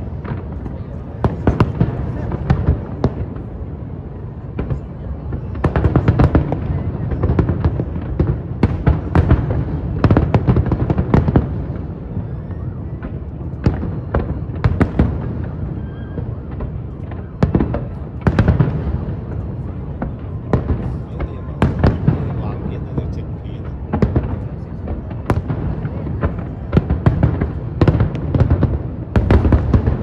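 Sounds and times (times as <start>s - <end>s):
fireworks bursting with sharp bangs: 0.0s - 30.0s.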